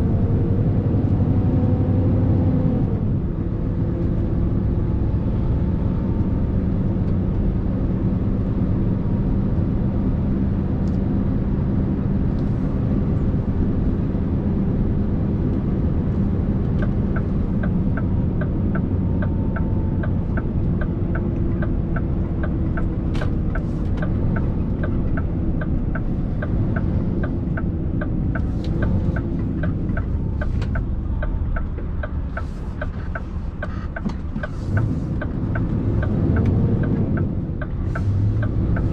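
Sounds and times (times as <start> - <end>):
diesel engine rumbling: 0.0 - 38.9
light ticking: 16.8 - 38.9.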